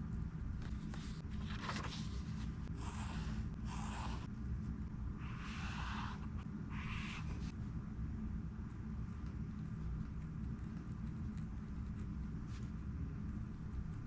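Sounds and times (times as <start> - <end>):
steady low hum: 0.0 - 14.0
pen scratching on paper: 2.7 - 4.3, 5.2 - 7.5.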